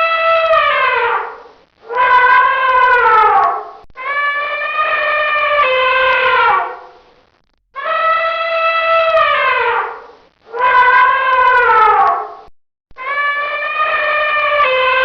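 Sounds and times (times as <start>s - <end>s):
elephant trumpeting: 0.0s - 7.0s, 7.8s - 12.4s, 13.1s - 15.0s.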